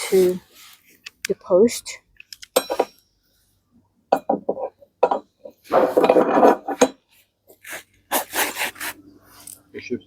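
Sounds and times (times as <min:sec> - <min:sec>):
coarse scraping rub: 0:07.5 - 0:09.5.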